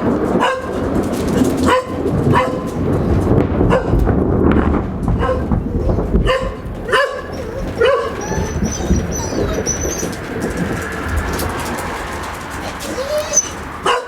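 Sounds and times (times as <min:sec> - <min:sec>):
dog barking: 0:00.0 - 0:04.0, 0:05.1 - 0:10.3, 0:12.6 - 0:14.0
low rumble: 0:00.0 - 0:13.8.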